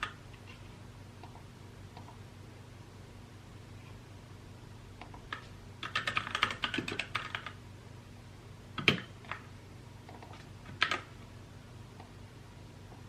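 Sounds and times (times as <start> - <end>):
mechanical keyboard typing: 5.3 - 7.6, 10.1 - 11.1.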